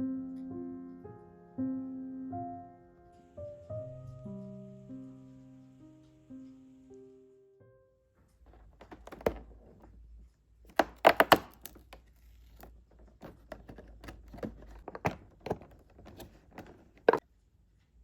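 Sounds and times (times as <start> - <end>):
clatter of objects: 8.2 - 17.2
objects knocking on hard surface: 8.4 - 10.1, 10.7 - 17.2.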